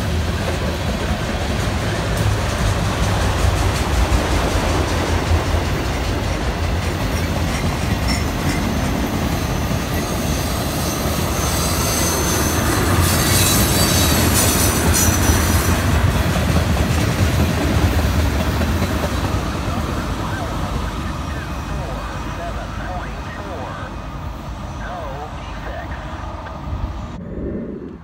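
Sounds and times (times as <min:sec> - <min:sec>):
steel wheels rumbling on rail: 0:00.0 - 0:25.1
freight train rolling past: 0:00.0 - 0:28.0
high-pitched wheel squeal: 0:10.0 - 0:15.3.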